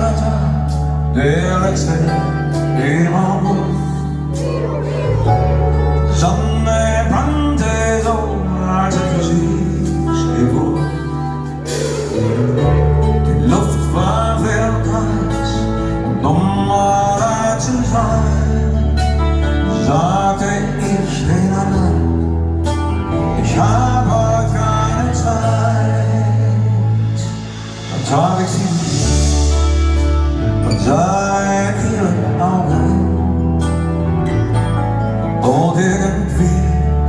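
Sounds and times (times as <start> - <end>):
live band playing rock ballad: 0.0 - 37.0.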